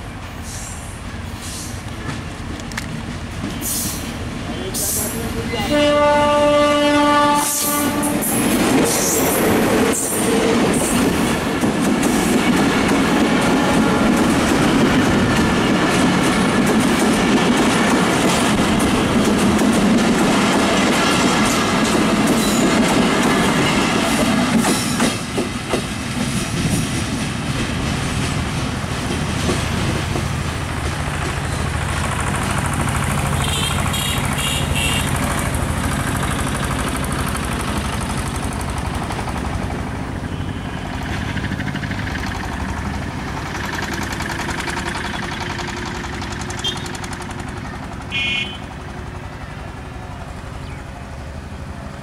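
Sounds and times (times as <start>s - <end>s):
diesel train passing: 0.0s - 52.0s
wheels clicking over rail joints: 7.9s - 40.0s, 40.9s - 51.0s.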